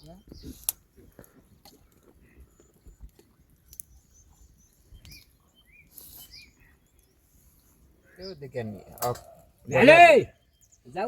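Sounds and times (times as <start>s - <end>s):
faint bird chirps: 0.0s - 1.2s, 2.2s - 9.7s.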